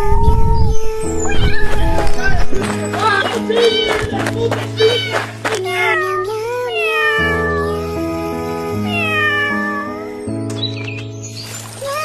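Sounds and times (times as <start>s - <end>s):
background music with sustained chords: 0.6s - 11.9s
kitten meowing: 3.5s - 4.2s, 4.8s - 7.8s, 8.9s - 9.9s.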